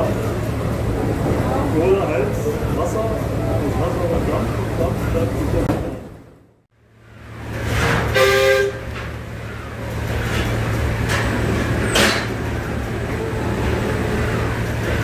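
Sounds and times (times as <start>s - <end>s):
short horn-like toot: 8.1s - 8.8s.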